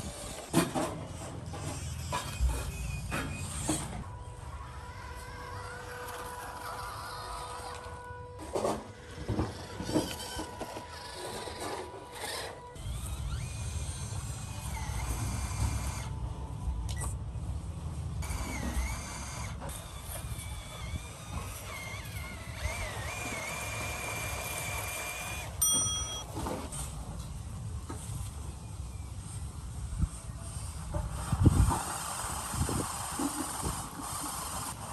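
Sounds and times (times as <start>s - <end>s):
electric toy truck motor whining: 0.0s - 17.2s, 18.2s - 26.9s, 29.0s - 34.9s
truck rumbling over rough ground: 0.0s - 28.6s.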